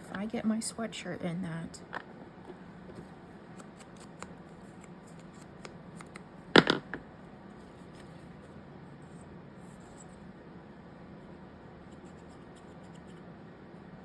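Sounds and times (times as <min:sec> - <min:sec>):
scissors snipping: 0:03.6 - 0:06.3.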